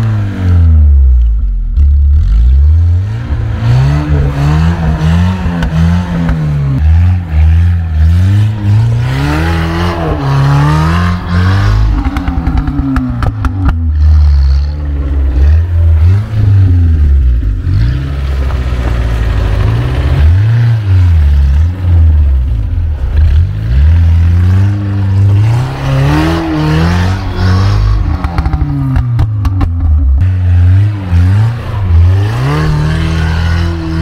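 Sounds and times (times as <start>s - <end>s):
engine revving hard: 2.2s - 18.5s, 23.1s - 34.0s.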